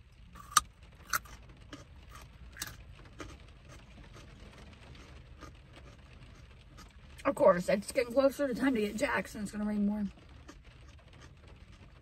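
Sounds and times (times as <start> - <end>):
eating crunches and clicks: 0.3 - 7.0.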